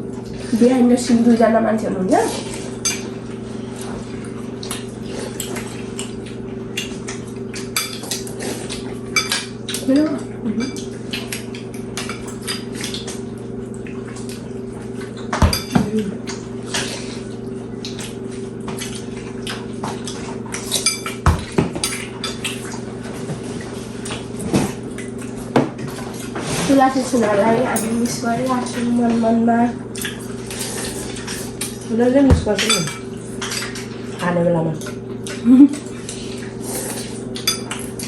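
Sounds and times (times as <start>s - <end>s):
steady low hum: 0.0s - 38.0s
cutlery clinking against dishes: 2.8s - 3.2s, 7.7s - 8.3s, 9.1s - 9.9s, 32.6s - 33.8s, 37.4s - 38.0s.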